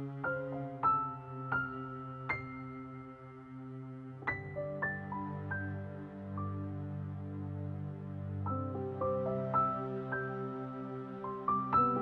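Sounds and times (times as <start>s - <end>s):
slow gentle keyboard notes: 0.0s - 12.0s.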